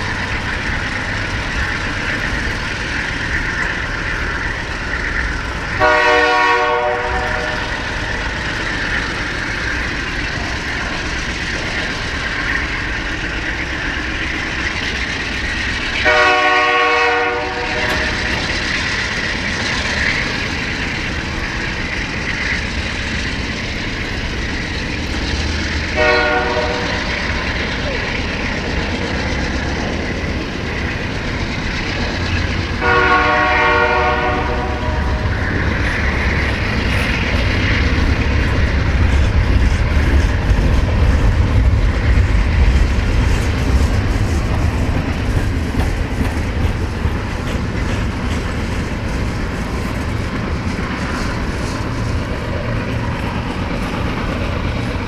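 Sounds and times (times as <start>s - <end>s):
freight train rumbling and rattling: 0.0s - 55.0s
train horn: 5.8s - 7.8s, 16.0s - 18.3s, 25.9s - 27.1s, 32.8s - 35.4s.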